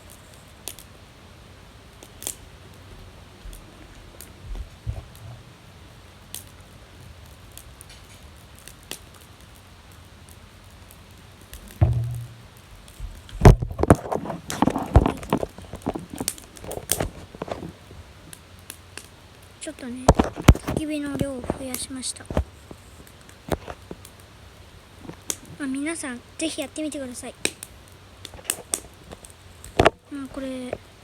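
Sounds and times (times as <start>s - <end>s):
fire crackle: 0.0s - 31.0s
firewood knocking and clacking: 11.5s - 18.4s, 20.0s - 22.8s.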